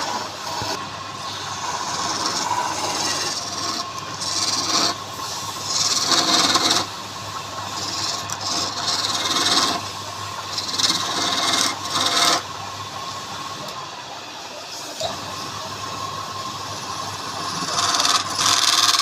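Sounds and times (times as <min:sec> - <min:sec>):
tool scraping spinning wood: 0:00.0 - 0:09.9, 0:10.5 - 0:12.5, 0:17.3 - 0:19.0
lathe humming: 0:00.0 - 0:19.0.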